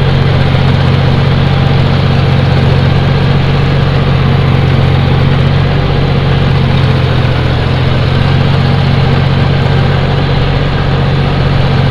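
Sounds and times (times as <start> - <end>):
tractor diesel engine running: 0.0 - 11.9.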